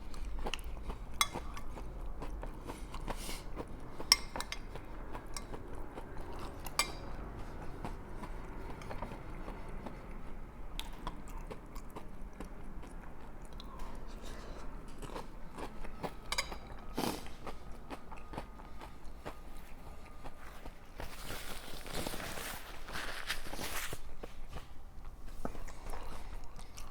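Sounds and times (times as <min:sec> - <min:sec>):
chewing and crunching chips: 0:00.0 - 0:26.9.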